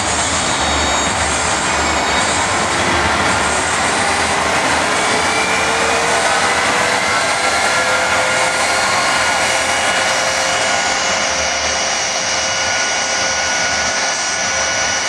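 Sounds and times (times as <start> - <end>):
jet engine roaring: 0.0 - 15.0.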